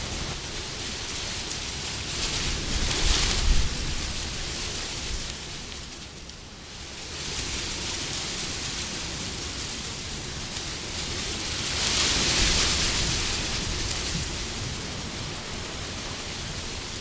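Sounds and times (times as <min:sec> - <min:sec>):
wind blowing: 0:00.0 - 0:05.3.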